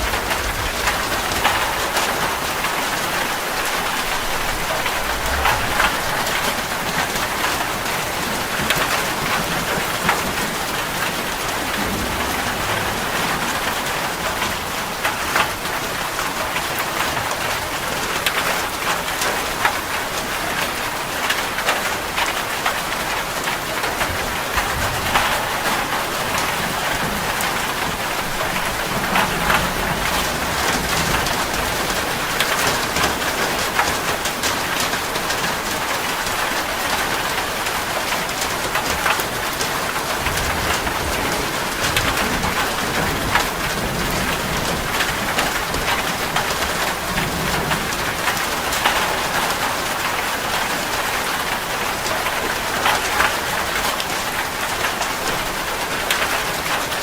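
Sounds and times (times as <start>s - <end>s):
steady rain with drop impacts: 0.0s - 57.0s.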